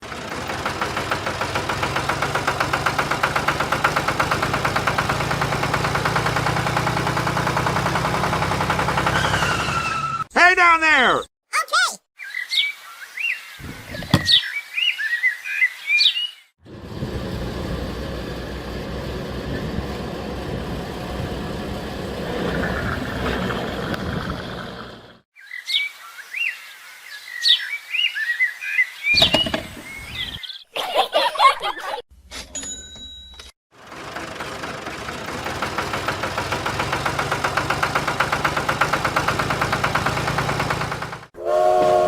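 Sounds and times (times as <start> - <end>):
birds chirping: 12.2 - 16.5, 24.1 - 30.8.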